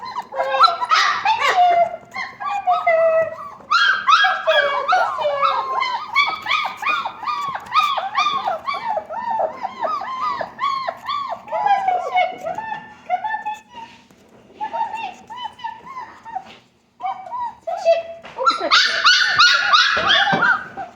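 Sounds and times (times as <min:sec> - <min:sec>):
puppies yelping: 0:00.0 - 0:13.0, 0:14.9 - 0:17.9, 0:18.5 - 0:20.9
puppies whining and squealing: 0:00.0 - 0:20.9.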